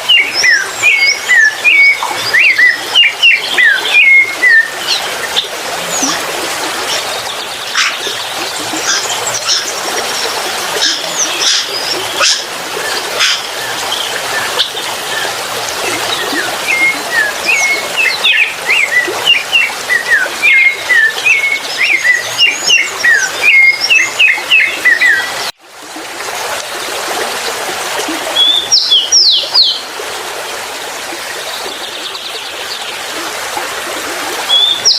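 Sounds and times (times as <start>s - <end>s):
birds chirping: 0.0s - 25.5s.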